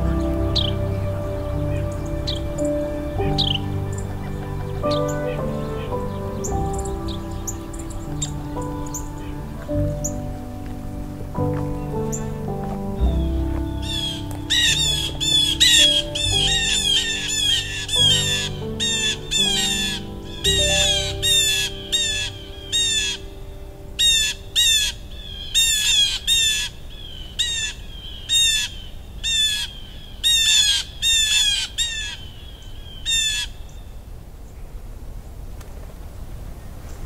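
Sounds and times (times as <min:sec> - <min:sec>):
closing music: 0:00.0 - 0:25.5.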